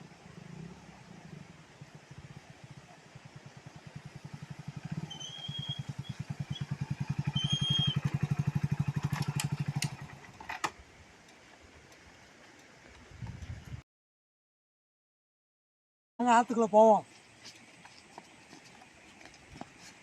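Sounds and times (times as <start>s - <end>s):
motorcycle engine running: 0.0s - 10.6s
bird chirping: 4.8s - 8.3s.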